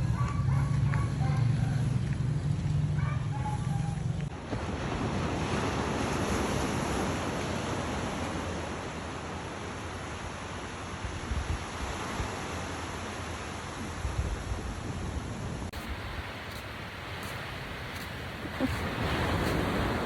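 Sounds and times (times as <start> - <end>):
low engine hum: 0.0 - 4.3
wind: 0.0 - 20.0
surf rushing: 15.8 - 20.0.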